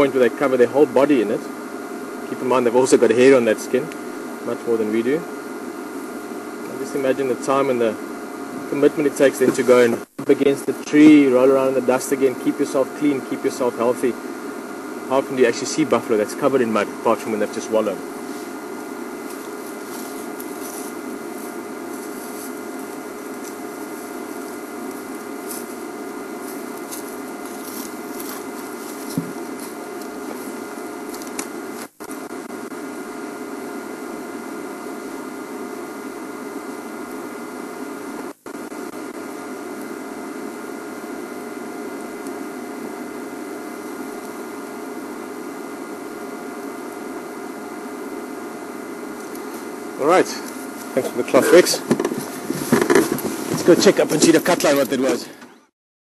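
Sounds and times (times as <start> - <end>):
steady hum with faint tones: 0.0 - 55.7.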